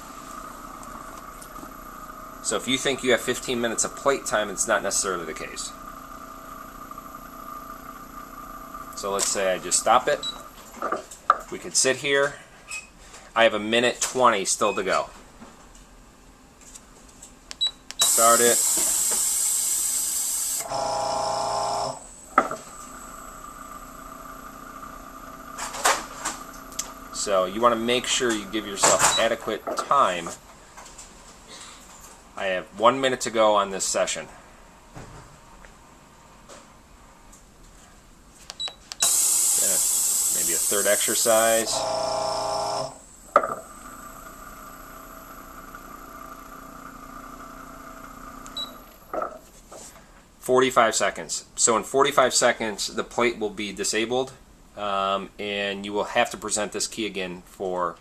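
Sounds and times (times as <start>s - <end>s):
vibration platform hissing whir: 0.0s - 10.1s, 18.0s - 29.0s, 39.0s - 48.5s
faint steady whine: 0.0s - 13.8s, 14.6s - 50.6s
click: 38.5s - 39.1s.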